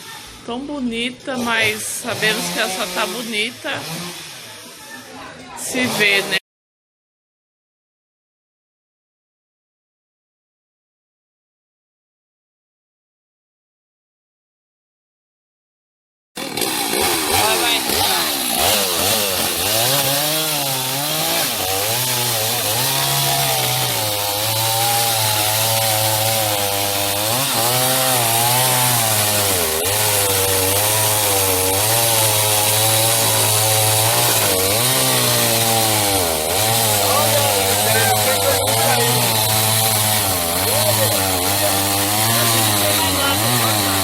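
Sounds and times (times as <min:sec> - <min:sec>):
chainsaw cutting wood: 0:00.0 - 0:04.8, 0:05.6 - 0:06.4, 0:16.4 - 0:44.0.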